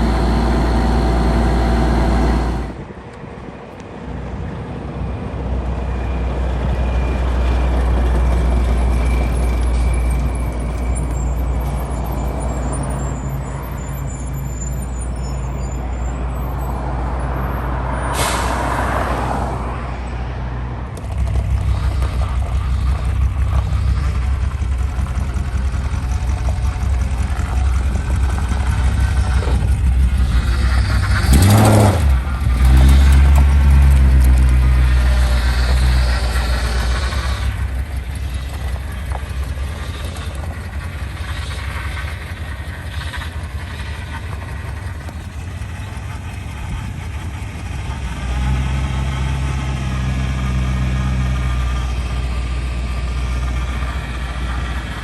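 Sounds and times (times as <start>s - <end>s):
truck engine running: 0.0s - 55.0s
air brakes hissing: 8.5s - 19.4s, 34.8s - 47.2s.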